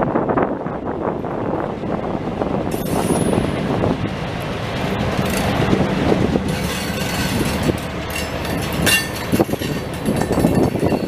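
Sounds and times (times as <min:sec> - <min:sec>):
train wheels rumbling on rail: 0:00.0 - 0:11.0
freight cars clanking: 0:02.6 - 0:11.0.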